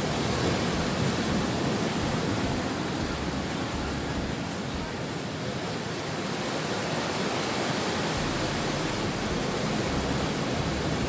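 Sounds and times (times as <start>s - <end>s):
low rumble: 0.0s - 5.0s, 8.2s - 11.0s
sea surf rushing: 0.0s - 11.0s.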